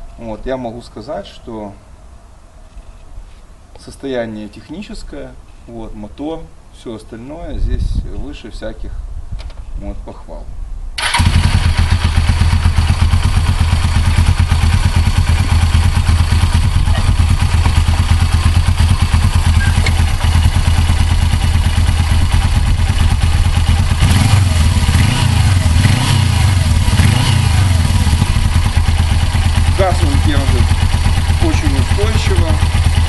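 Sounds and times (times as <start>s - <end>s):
motorcycle engine idling: 11.0s - 33.0s.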